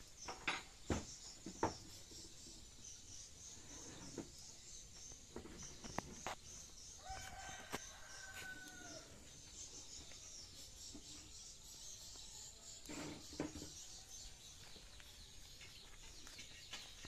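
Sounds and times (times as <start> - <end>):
rooster crowing: 7.0 - 9.2.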